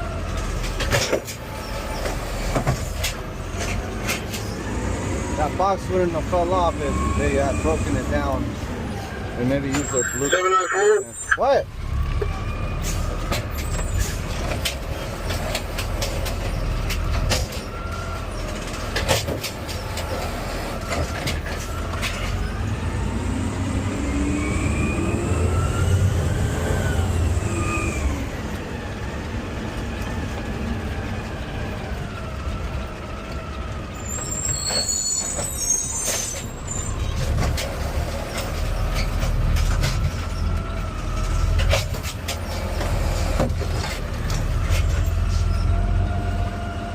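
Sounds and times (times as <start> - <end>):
diesel engine running: 11.6 - 34.7.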